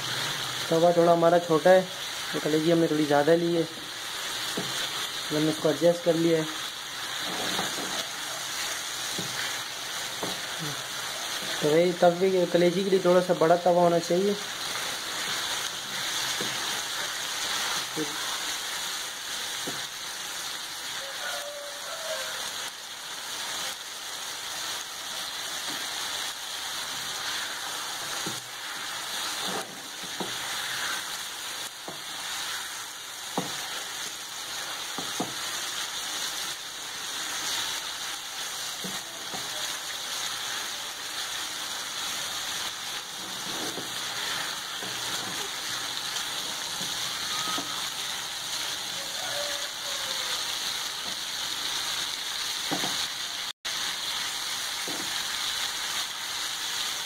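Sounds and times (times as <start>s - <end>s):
chicken livers sizzling on griddle: 0.0s - 57.0s
wooden spatula scraping pan: 7.0s - 10.6s, 27.1s - 31.2s, 43.0s - 47.8s.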